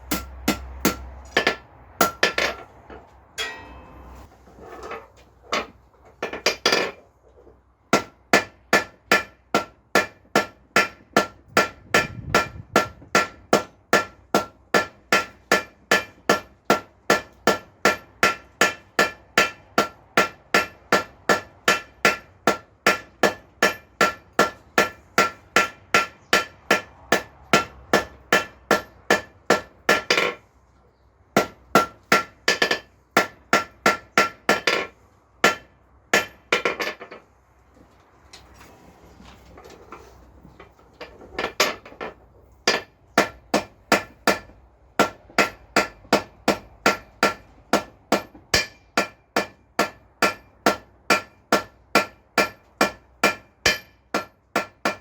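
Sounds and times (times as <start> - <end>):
hammer blows on anvil ringing: 3.4 - 4.2.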